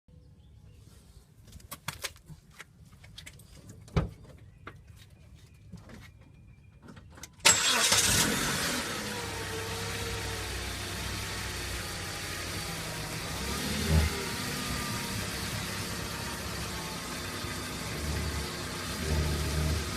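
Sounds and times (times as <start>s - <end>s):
car engine starting and idling: 7.3s - 19.9s.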